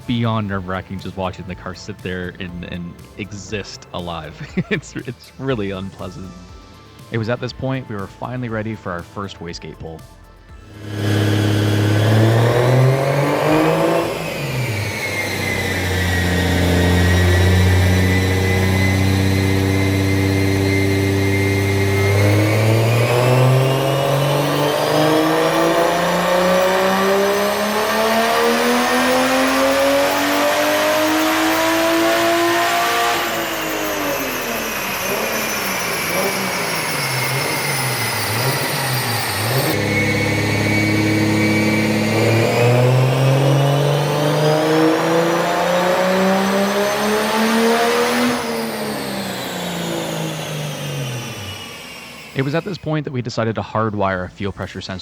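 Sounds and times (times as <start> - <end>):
car engine revving on dyno: 10.7 - 52.8.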